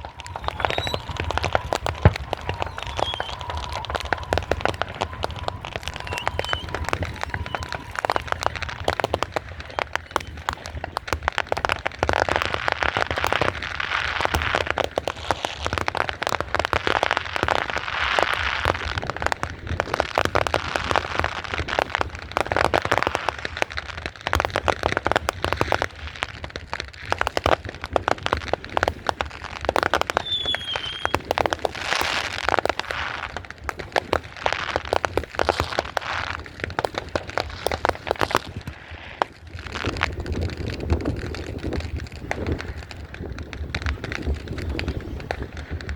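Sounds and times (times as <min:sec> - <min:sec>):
short high firework whistle: 0:00.0 - 0:10.9, 0:30.0 - 0:32.4
firecrackers crackling and popping: 0:00.0 - 0:45.9.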